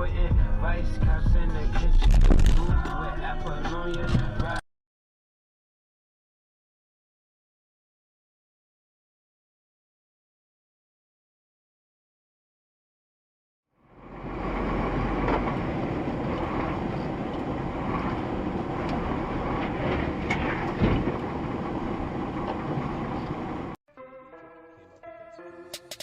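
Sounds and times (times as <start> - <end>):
vehicle road and engine noise: 0.0 - 4.6, 13.8 - 23.8.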